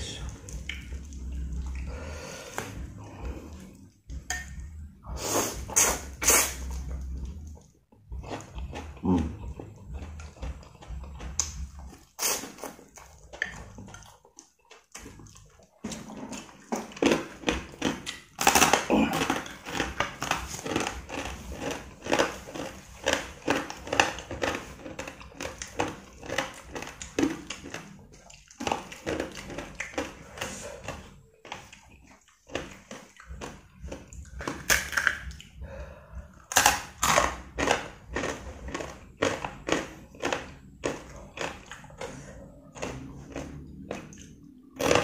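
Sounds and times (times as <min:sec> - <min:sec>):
chewing noodles: 0:00.0 - 0:45.0
crunching crackers: 0:08.2 - 0:35.6, 0:36.4 - 0:45.0.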